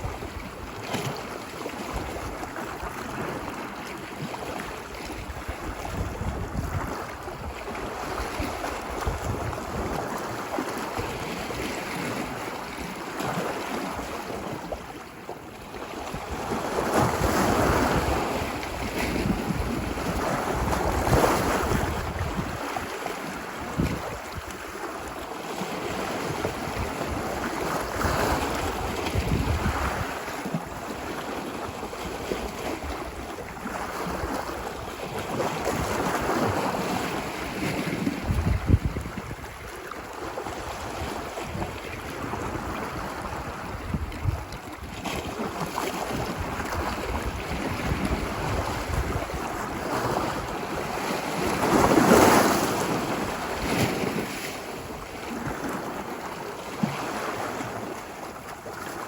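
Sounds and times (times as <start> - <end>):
wind on microphone: 0.0 - 15.0, 15.6 - 59.0
ocean waves on a beach: 0.0 - 59.0.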